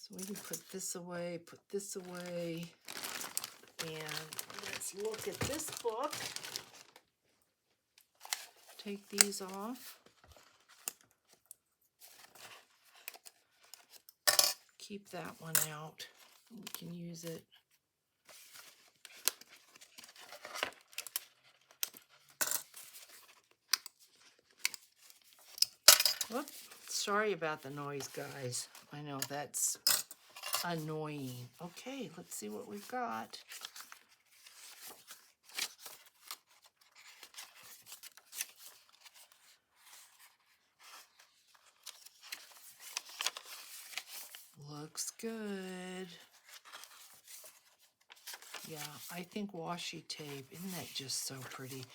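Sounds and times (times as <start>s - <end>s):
paper rustling: 2.0s - 7.2s, 18.2s - 25.7s, 30.2s - 44.6s, 45.6s - 49.3s, 50.2s - 51.9s.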